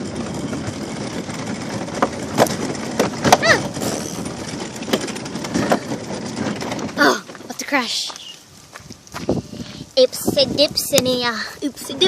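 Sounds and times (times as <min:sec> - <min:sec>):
cart wheels rolling on rough ground: 0:00.0 - 0:12.0
sharp knocks and cracks: 0:01.8 - 0:03.5.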